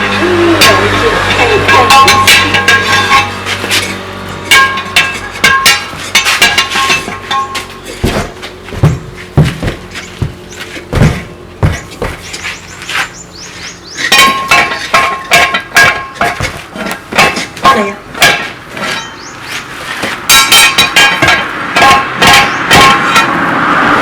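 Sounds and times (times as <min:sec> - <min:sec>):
heavy dull thuds: 0:01.2 - 0:19.1
hammer knocks on metal: 0:04.5 - 0:12.3, 0:20.0 - 0:23.2.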